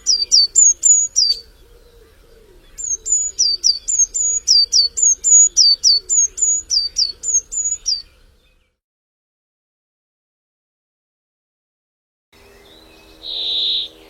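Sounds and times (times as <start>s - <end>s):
songbird two-note song: 12.4s - 14.0s.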